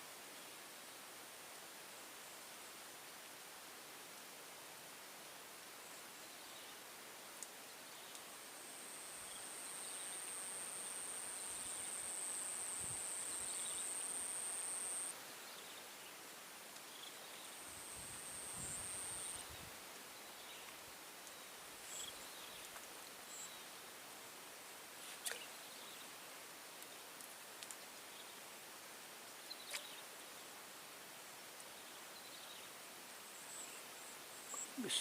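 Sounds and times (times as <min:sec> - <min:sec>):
faint outdoor background: 0:00.0 - 0:35.0
insect buzzing call: 0:08.7 - 0:15.1, 0:17.0 - 0:19.5.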